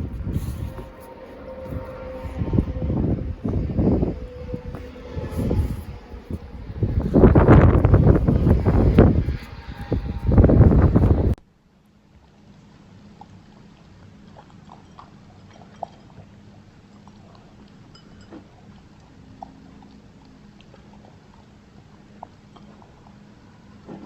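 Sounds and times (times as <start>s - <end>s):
puppy crunching in snow: 0.0s - 2.7s, 4.6s - 11.4s
low steady hum: 0.0s - 23.9s.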